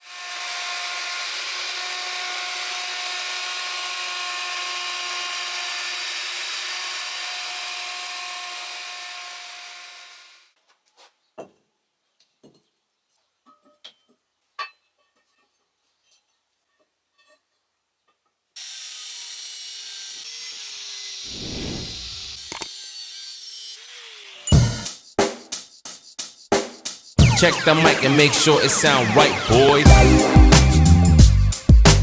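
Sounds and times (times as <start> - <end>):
electric router cutting wood: 0.0 - 10.4, 18.6 - 24.5, 27.2 - 31.0.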